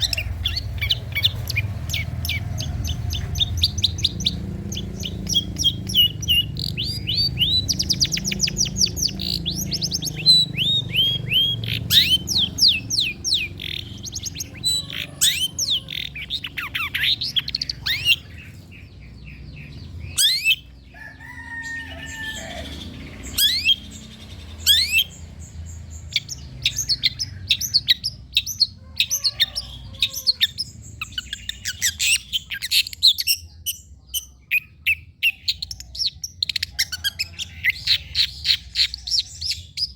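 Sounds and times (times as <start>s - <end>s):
harsh lower bird call: 0.0s - 25.3s
bird singing high chirps: 0.0s - 39.9s.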